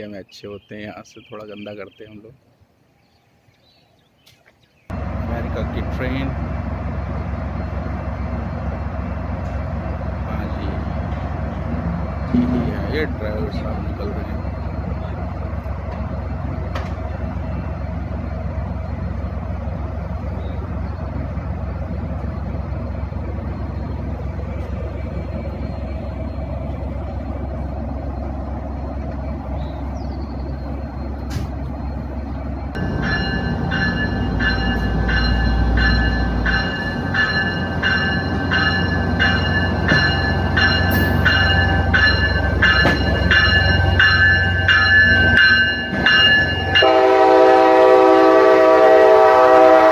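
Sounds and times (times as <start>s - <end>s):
diesel locomotive rumbling: 4.9s - 49.9s
locomotive bell ringing: 30.5s - 49.9s.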